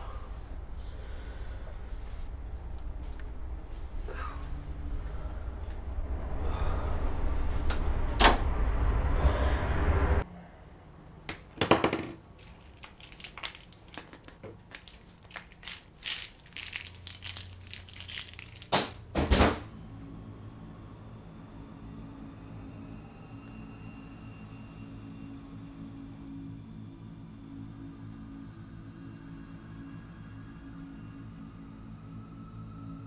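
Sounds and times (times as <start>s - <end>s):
loud low rumble: 0.0s - 10.2s.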